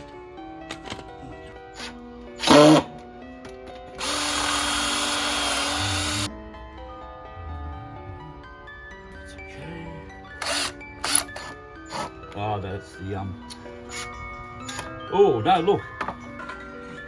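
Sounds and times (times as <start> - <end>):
background music: 0.0 - 17.0
power drill running: 1.8 - 2.9, 4.0 - 6.3, 10.4 - 12.1.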